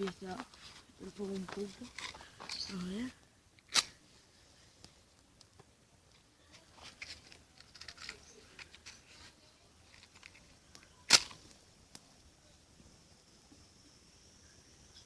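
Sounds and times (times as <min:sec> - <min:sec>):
campfire crackling and popping: 0:00.0 - 0:15.0
sharp snap of fire: 0:03.6 - 0:04.0, 0:10.2 - 0:12.4.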